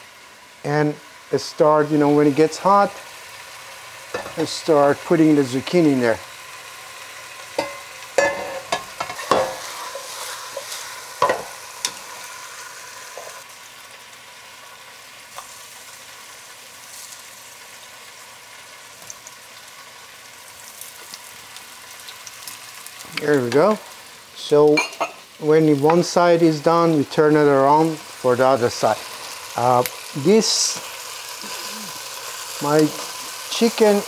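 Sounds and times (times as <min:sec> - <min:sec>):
oil sizzling in a skillet: 0:00.0 - 0:34.0
cookware clinks and knocks: 0:07.6 - 0:09.6.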